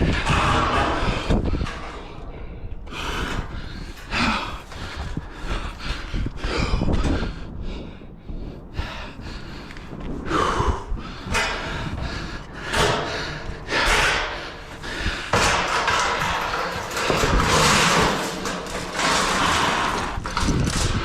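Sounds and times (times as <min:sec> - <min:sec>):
sheet metal scraping and thumping: 0:00.0 - 0:02.1, 0:11.3 - 0:21.0.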